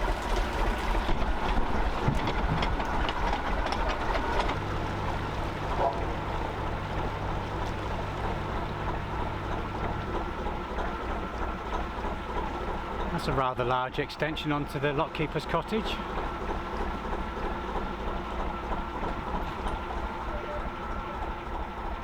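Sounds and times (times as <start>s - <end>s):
diesel engine throbbing: 0.0s - 22.0s
steady low hum: 2.9s - 22.0s.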